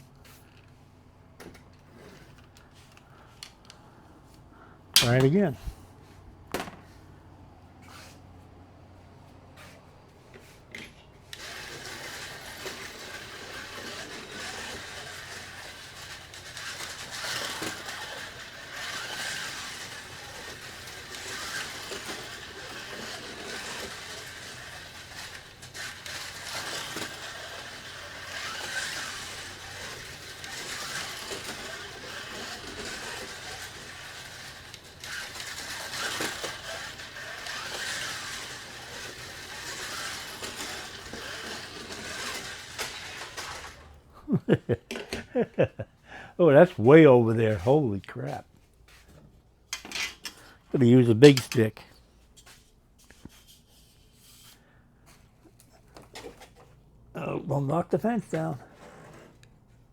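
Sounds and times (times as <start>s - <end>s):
slot car motor whining: 11.2s - 44.2s, 49.8s - 51.8s.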